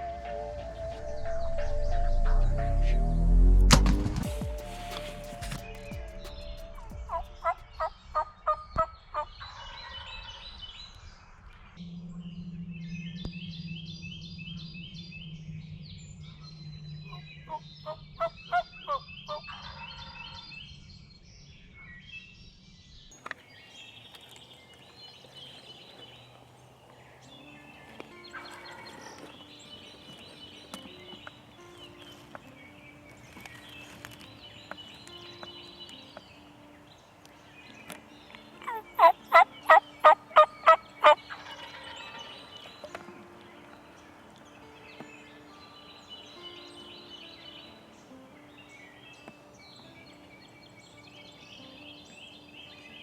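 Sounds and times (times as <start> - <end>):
downward-sliding sweeps: 0.0 - 6.4
intro music held tones: 0.0 - 9.8, 11.6 - 20.8, 24.5 - 53.0
songbirds trilling: 4.4 - 53.0
turkey gobbling: 17.1 - 20.4, 27.8 - 29.4, 38.6 - 42.6.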